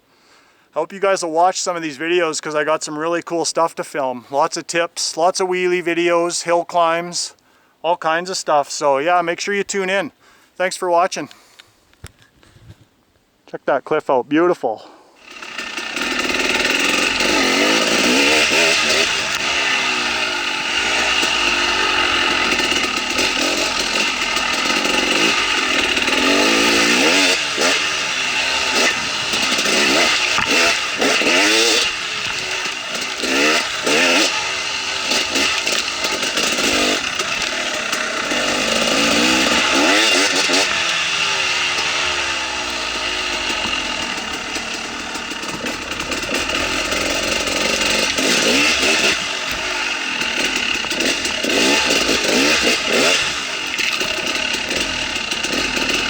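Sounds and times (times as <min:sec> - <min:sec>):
dirt bike engine revving: 0:15.2 - 0:56.0.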